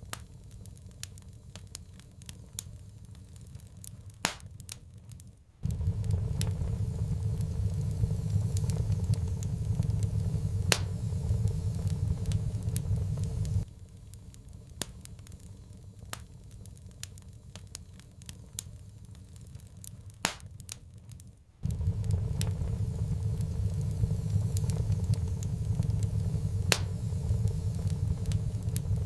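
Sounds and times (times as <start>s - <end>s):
wood fire crackling: 0.0s - 29.0s
low rumble: 5.6s - 13.7s, 21.6s - 29.0s.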